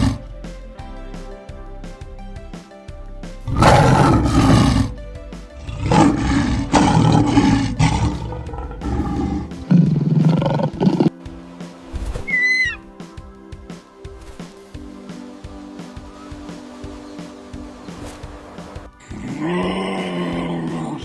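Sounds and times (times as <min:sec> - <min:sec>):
tiger roaring: 0:00.0 - 0:00.3, 0:03.5 - 0:05.0, 0:05.6 - 0:11.1
background music: 0:00.0 - 0:21.0.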